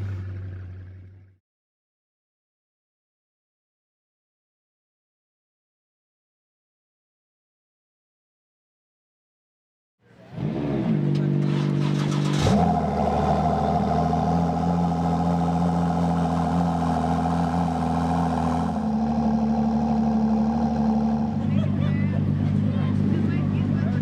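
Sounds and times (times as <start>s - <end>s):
car engine with loud exhaust: 0.0s - 1.4s, 10.0s - 24.0s.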